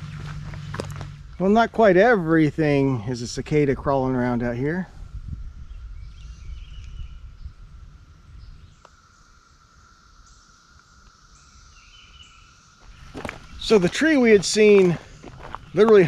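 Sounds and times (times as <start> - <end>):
low rumble: 0.0 - 8.8
cicadas droning: 0.0 - 16.0.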